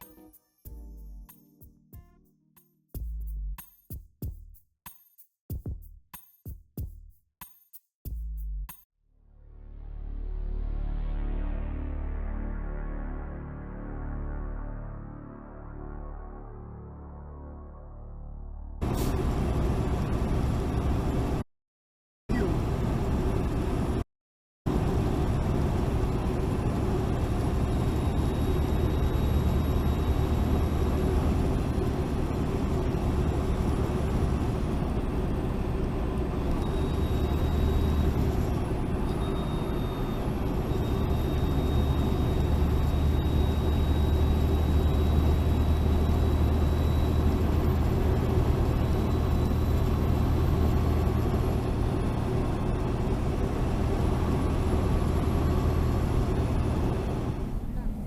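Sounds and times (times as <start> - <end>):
car road and engine drone: 9.4 - 21.5, 22.3 - 24.1, 24.7 - 58.0
faint high whine: 24.8 - 57.0.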